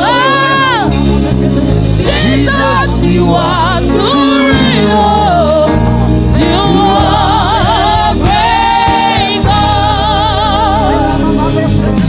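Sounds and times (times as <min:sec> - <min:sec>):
backing voices: 0:00.0 - 0:12.0
band with steady bass: 0:00.0 - 0:12.0
singer with wide vibrato: 0:02.0 - 0:11.6.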